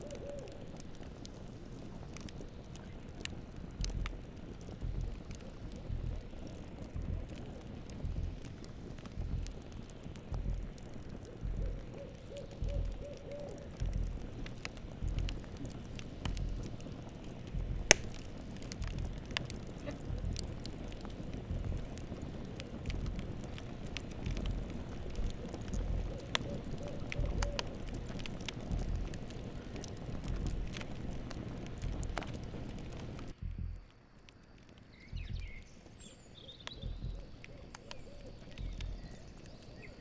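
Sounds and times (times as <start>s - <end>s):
owl hooting: 0.0s - 0.8s, 11.2s - 14.3s, 24.8s - 29.1s, 36.4s - 39.2s
campfire crackling and popping: 0.0s - 40.0s
low rumble: 27.1s - 33.9s, 35.1s - 35.6s.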